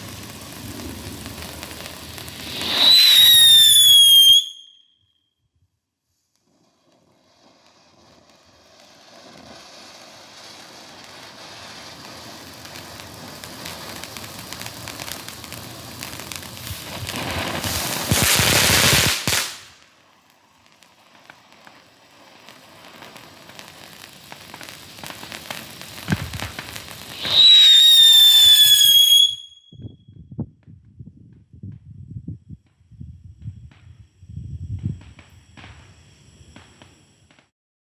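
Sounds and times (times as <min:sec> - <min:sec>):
firework spark fountain hissing: 0:00.0 - 0:04.7, 0:06.4 - 0:29.6
firework crackling: 0:00.0 - 0:04.8, 0:06.2 - 0:29.8, 0:33.3 - 0:37.5
firework whistle: 0:00.0 - 0:05.2, 0:06.8 - 0:30.0.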